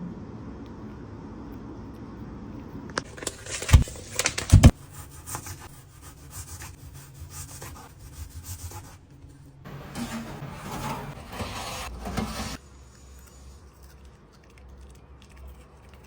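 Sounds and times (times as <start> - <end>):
rubbing and scraping: 3.0 - 12.6.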